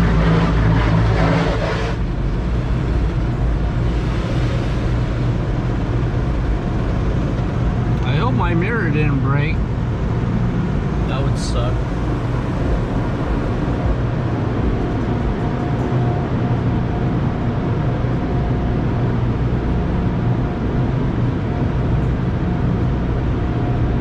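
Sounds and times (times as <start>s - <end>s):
car cabin rumble and hiss: 1.9s - 19.8s.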